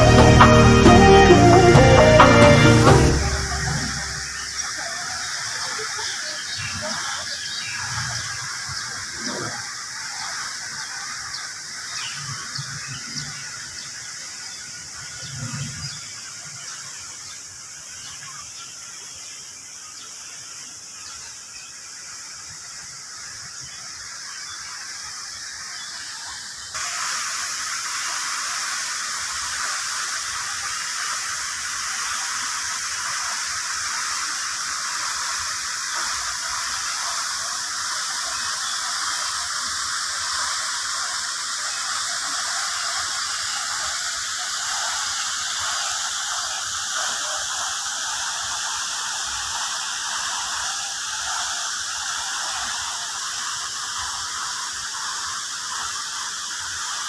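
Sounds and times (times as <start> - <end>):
falling water splashing: 0.0 - 6.2, 26.8 - 57.0.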